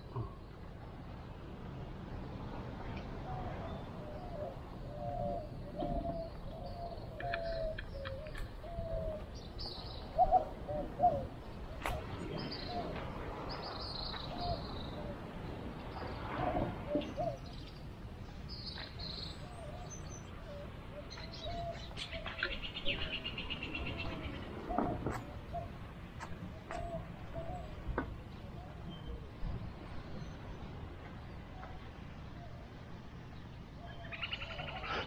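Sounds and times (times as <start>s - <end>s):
low pitched bird calls: 3.4s - 17.8s, 33.7s - 35.0s.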